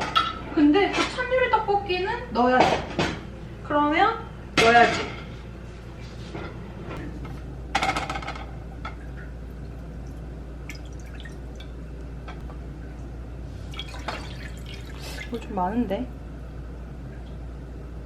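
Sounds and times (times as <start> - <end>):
water running into a cup: 9.2 - 11.8, 13.7 - 15.6.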